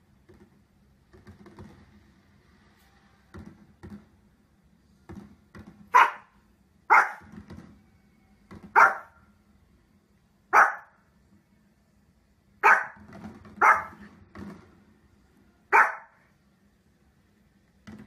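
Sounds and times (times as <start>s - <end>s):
dog barking: 5.9s - 7.3s, 8.7s - 9.2s, 10.5s - 11.0s, 12.6s - 14.0s, 15.7s - 16.2s.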